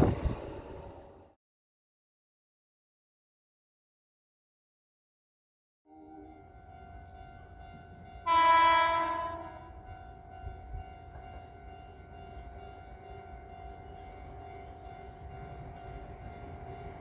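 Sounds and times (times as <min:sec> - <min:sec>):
train horn blast: 0:05.9 - 0:07.0, 0:08.2 - 0:10.8.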